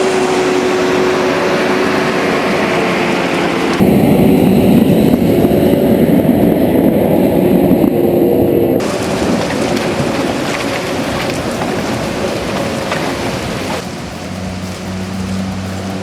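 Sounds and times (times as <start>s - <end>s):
heavy machinery engine running: 0.0s - 7.8s, 8.8s - 16.0s
rushing noise: 0.0s - 16.0s.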